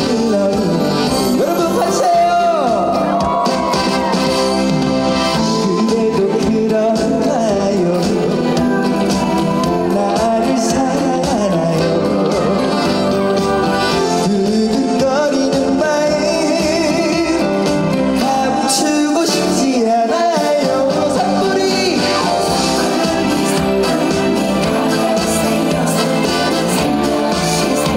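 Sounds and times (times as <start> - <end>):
man singing: 0.0 - 3.6, 4.6 - 27.9
backing music: 0.0 - 27.9.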